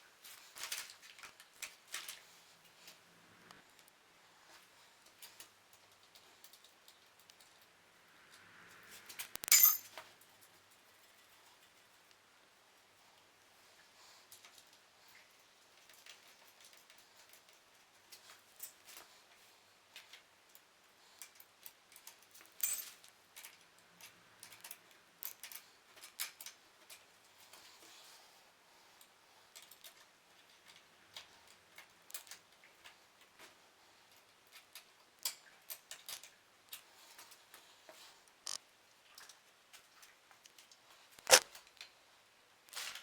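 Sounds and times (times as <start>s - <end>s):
tools and parts clicking: 9.2s - 10.0s, 21.9s - 26.6s.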